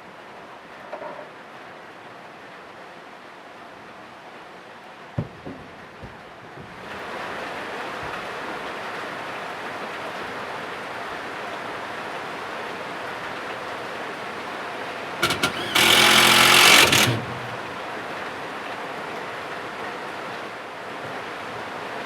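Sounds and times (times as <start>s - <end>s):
power tool motor whining: 15.2s - 17.9s.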